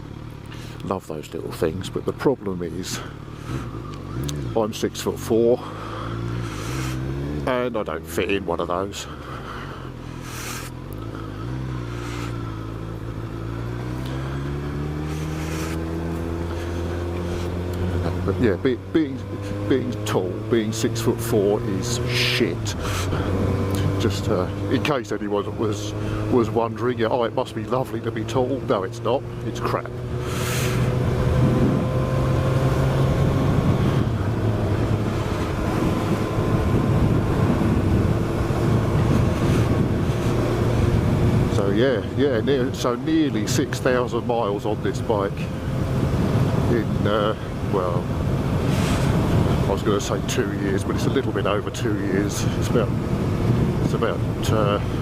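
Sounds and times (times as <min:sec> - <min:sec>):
motorcycle engine running: 0:00.0 - 0:55.0
wind noise rush: 0:31.1 - 0:32.1, 0:33.2 - 0:41.5, 0:52.2 - 0:55.0.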